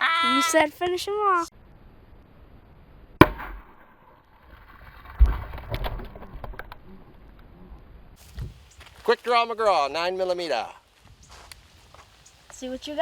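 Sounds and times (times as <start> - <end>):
handgun shot with echo: 3.2 - 4.0
loud low thump: 3.2 - 4.1.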